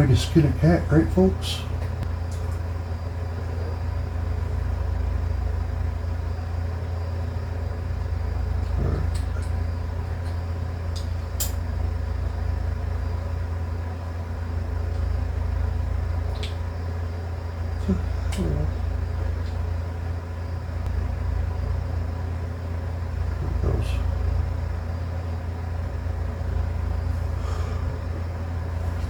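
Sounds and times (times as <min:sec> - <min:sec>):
low hum of equipment: 0:00.0 - 0:29.0
small sharp clicks: 0:16.3 - 0:16.7.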